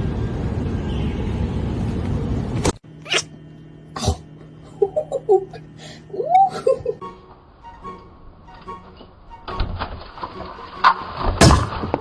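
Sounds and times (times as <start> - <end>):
kitten mewing: 3.0 - 3.4.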